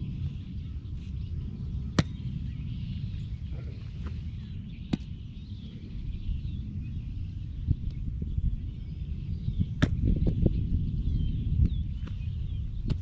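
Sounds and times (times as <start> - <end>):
birds chirping: 0.0 - 13.0
wind rumbling on microphone: 0.0 - 13.0
sharp smacks: 2.0 - 2.2, 4.9 - 5.1.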